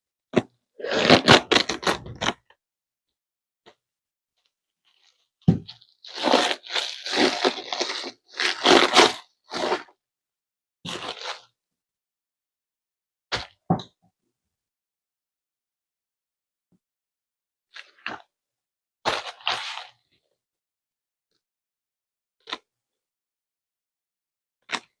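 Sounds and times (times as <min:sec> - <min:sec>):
crinkling and scraping: 0:04.9 - 0:09.8.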